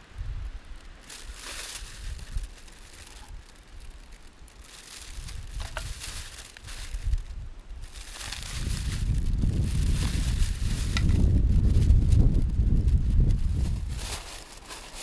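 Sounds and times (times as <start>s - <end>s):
low rumbling: 0.0s - 14.5s
rustling and handling noise: 0.0s - 15.0s.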